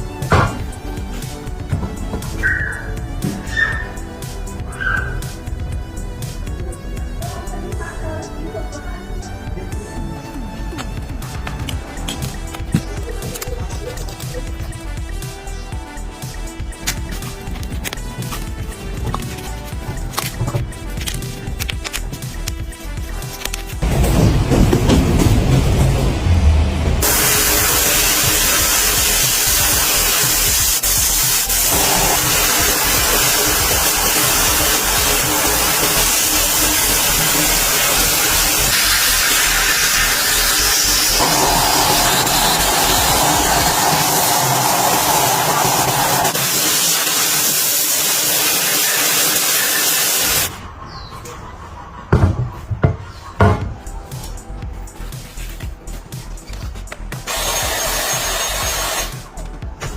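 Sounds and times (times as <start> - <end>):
pressurised spraying hiss: 27.0 - 50.5.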